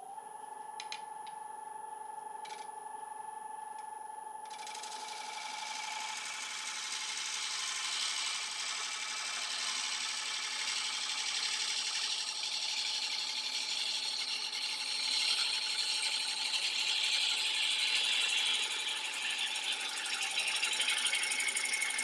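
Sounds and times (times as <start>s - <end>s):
gouge on grinding wheel: 4.5s - 22.0s.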